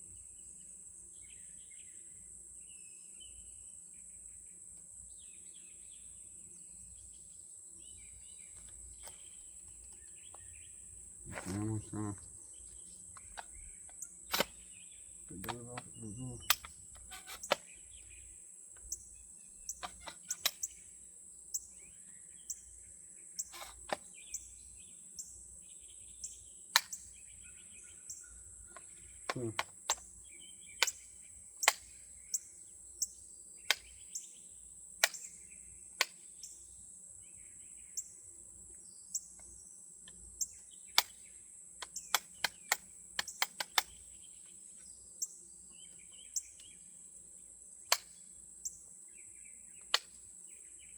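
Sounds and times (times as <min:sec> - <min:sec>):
birds chirping: 0:01.2 - 0:47.2
sharp clicks and knocks: 0:13.2 - 0:14.6, 0:15.3 - 0:17.7, 0:19.7 - 0:20.7, 0:23.4 - 0:24.1, 0:28.7 - 0:30.1, 0:41.8 - 0:44.0.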